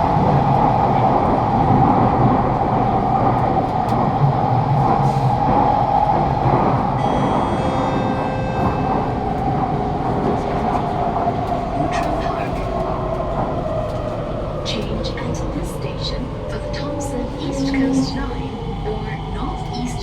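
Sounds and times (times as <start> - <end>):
train rumbling through tunnel: 0.0 - 20.0
steady high tones: 7.0 - 10.8.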